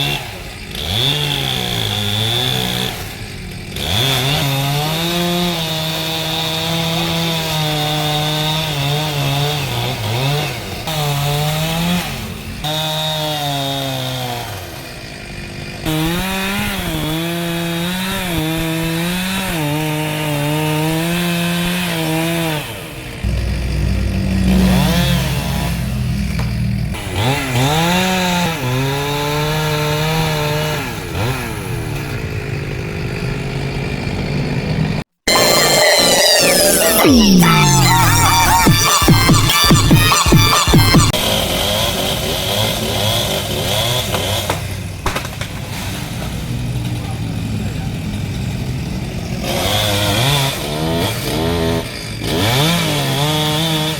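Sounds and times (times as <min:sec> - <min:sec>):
chainsaw cutting wood: 0:00.0 - 0:53.9
deep rumble: 0:23.3 - 0:27.4.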